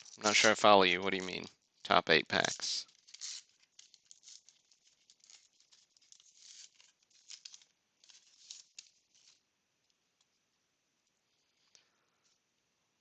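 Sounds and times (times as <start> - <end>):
wrapper rustling and crinkling: 0.0 - 9.5.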